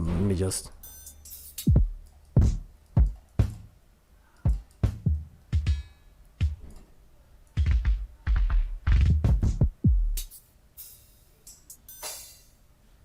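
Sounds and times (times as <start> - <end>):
drum kit kick and snare beat: 1.4 - 3.7, 4.4 - 6.8, 7.6 - 11.1.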